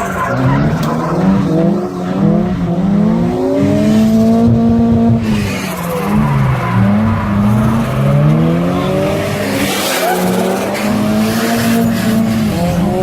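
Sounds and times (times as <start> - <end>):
car engine revving: 0.0 - 13.0
tyres squealing: 5.5 - 12.2.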